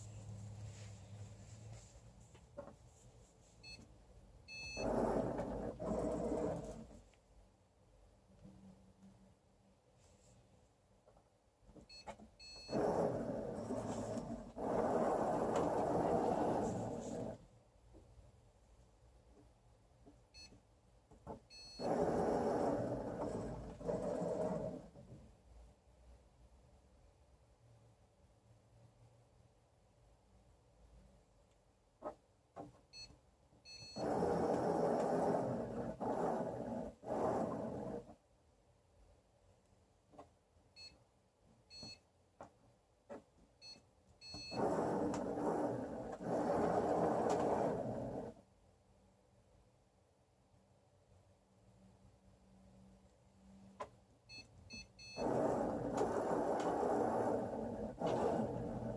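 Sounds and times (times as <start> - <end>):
short electronic beeps: 4.5 - 4.9, 32.9 - 34.0, 41.7 - 42.0, 43.6 - 44.6, 54.3 - 55.2
motors running under board: 44.5 - 48.3, 55.2 - 58.9.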